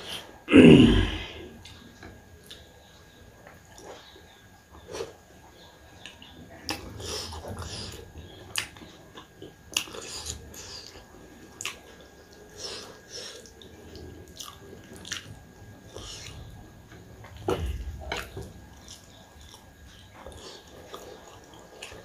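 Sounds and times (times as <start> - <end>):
person chewing food: 4.8 - 22.0.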